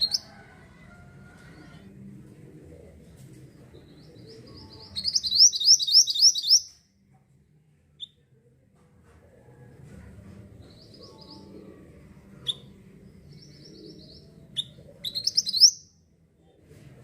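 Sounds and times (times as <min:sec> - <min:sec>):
songbird singing high notes: 0:04.7 - 0:06.7.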